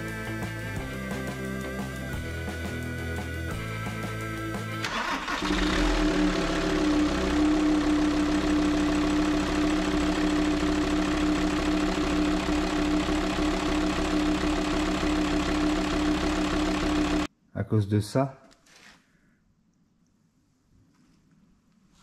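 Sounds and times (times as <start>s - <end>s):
diesel engine starting and idling: 3.6s - 17.3s.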